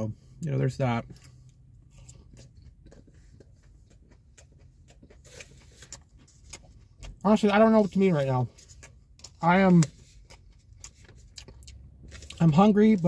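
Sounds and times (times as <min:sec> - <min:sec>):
person chewing with mouth clicks: 0:01.0 - 0:07.2, 0:08.6 - 0:12.4.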